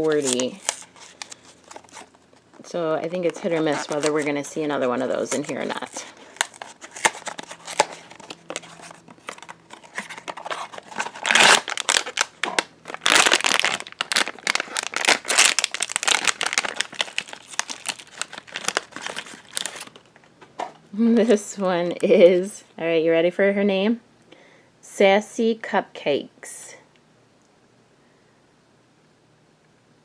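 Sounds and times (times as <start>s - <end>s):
packaging crinkling and rustling: 0.0s - 20.3s.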